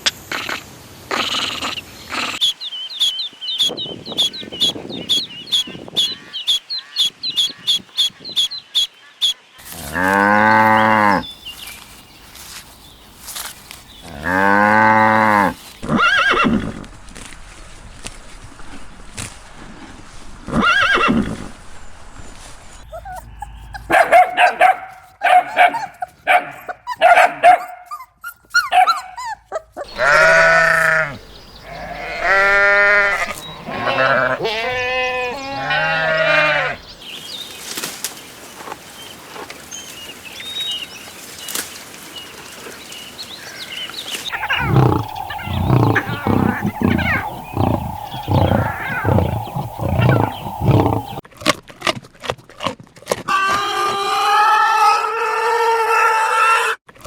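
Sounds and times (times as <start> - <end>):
goat bleating: 29.3 - 36.8, 44.3 - 51.2
fast pulsed animal calls: 44.3 - 51.2
short repeated animal calls: 44.3 - 51.2.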